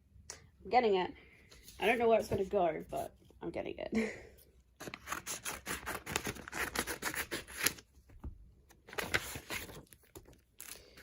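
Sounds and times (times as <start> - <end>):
packaging scratching and rustling: 4.8 - 7.8.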